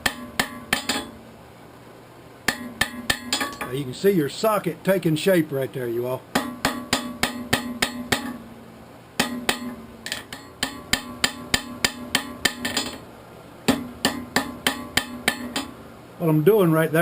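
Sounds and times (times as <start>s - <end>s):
hammer ringing on anvil: 0.0s - 1.2s, 2.5s - 3.7s, 6.4s - 8.4s, 9.2s - 13.0s, 13.7s - 15.8s.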